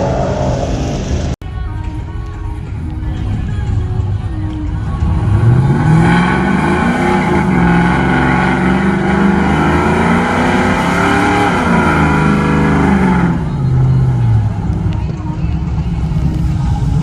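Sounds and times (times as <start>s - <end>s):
vehicle engine revving high: 5.2s - 14.9s.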